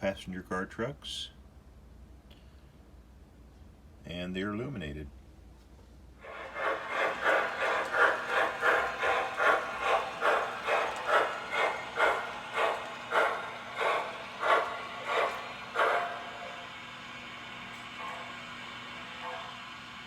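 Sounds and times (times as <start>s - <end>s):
model steam locomotive chuffing: 6.2s - 20.0s.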